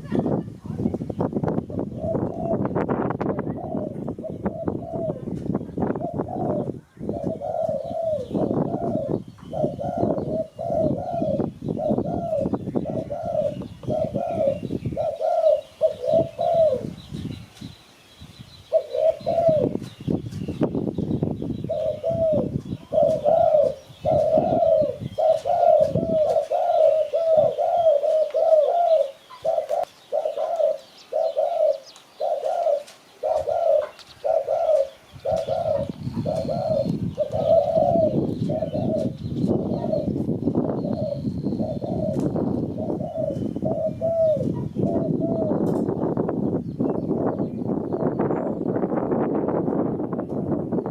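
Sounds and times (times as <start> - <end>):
doves cooing: 0.0 - 17.9, 18.5 - 46.3.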